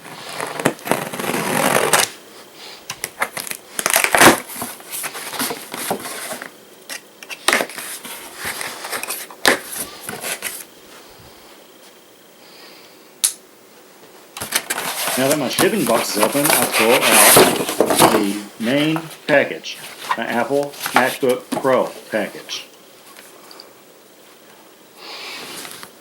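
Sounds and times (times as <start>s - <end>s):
tape and cardboard tearing: 0.1s - 2.2s, 3.1s - 10.6s, 14.4s - 19.0s
knife cutting packing tape: 0.2s - 2.1s, 3.1s - 6.0s
sharp click: 13.2s - 13.4s.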